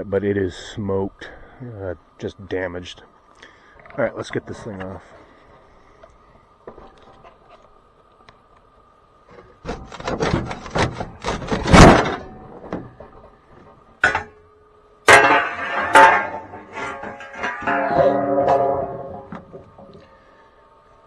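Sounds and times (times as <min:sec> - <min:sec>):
metal clanks and scrapes: 0:09.4 - 0:13.3, 0:14.0 - 0:14.4, 0:15.1 - 0:20.1.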